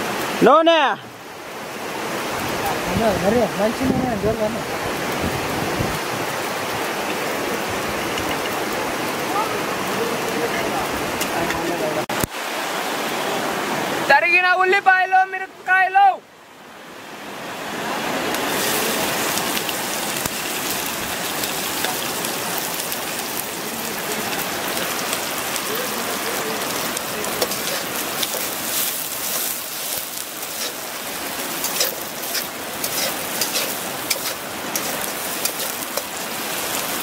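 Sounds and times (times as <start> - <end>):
onions sizzling in hot oil: 18.3 - 37.0
metal spatula scraping a wok: 27.4 - 30.8, 31.6 - 36.1.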